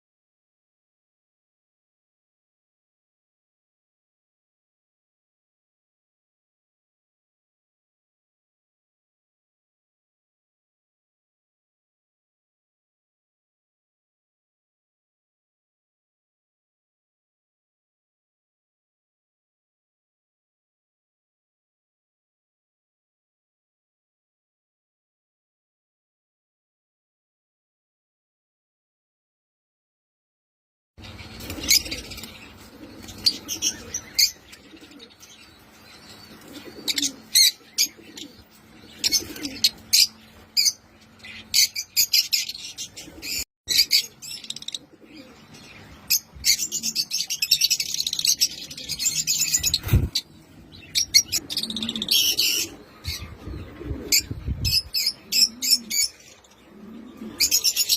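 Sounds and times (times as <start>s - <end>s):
lovebirds chirping: 31.0s - 57.9s.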